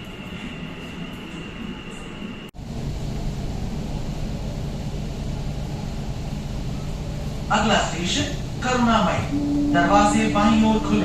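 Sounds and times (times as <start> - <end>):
train rumble and hiss: 0.0 - 11.0
thin high whine: 8.3 - 11.0.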